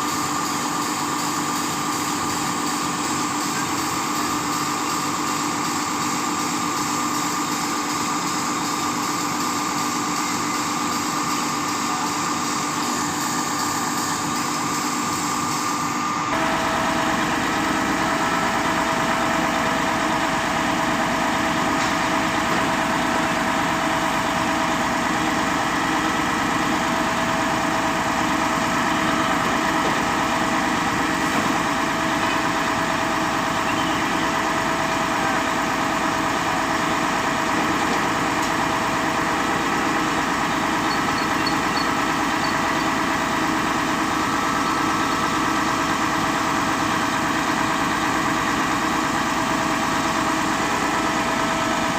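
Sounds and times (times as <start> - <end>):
truck engine running: 0.0 - 51.9.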